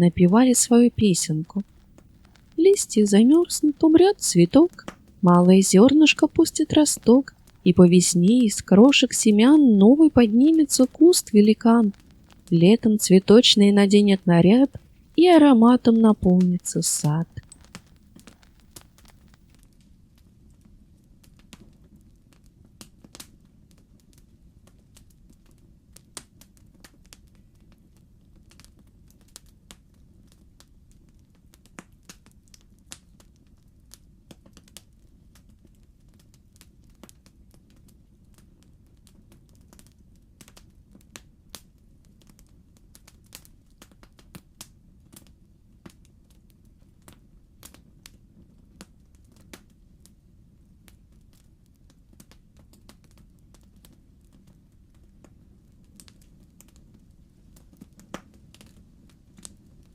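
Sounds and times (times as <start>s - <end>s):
logs crackling and popping: 1.5s - 2.6s, 10.2s - 12.6s, 17.3s - 19.6s.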